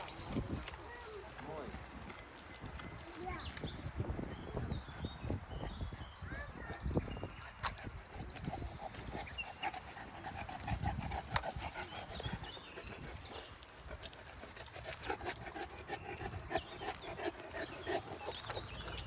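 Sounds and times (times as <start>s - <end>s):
dog panting: 6.6s - 19.0s.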